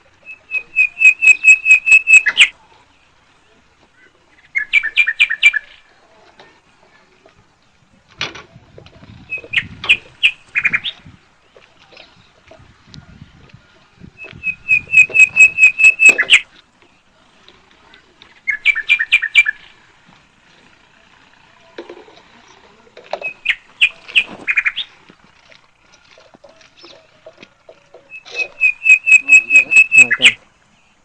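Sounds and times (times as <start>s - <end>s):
bird calling in sharp bursts: 0.2s - 2.6s, 4.4s - 5.9s, 9.3s - 11.1s, 14.2s - 16.6s, 18.4s - 19.8s, 23.2s - 25.0s, 28.1s - 30.5s.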